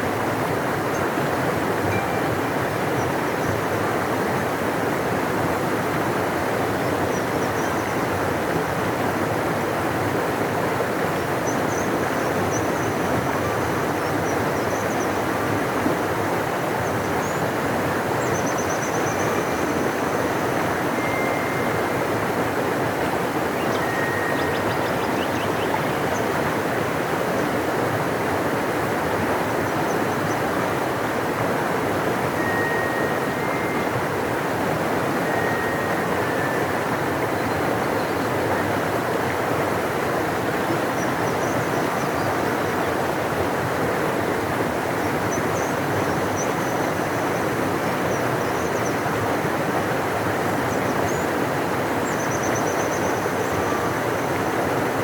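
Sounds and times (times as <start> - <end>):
river rushing: 0.0 - 55.0
faint high chirps: 20.9 - 22.1, 32.3 - 34.3.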